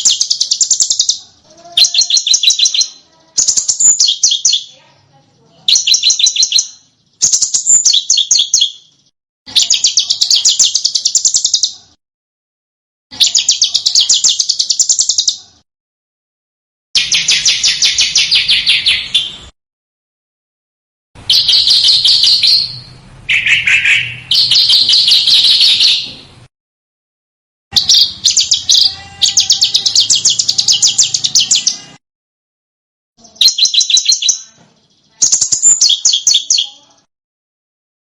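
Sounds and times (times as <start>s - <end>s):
songbird chattering trills: 0.0s - 11.9s, 13.2s - 15.6s, 27.7s - 32.0s, 33.2s - 37.1s.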